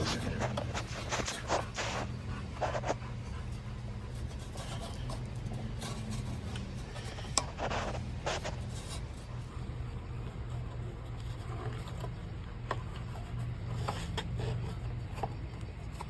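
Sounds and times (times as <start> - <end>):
hands rubbing and scraping: 0.0 - 9.5
steady low hum: 0.0 - 16.0.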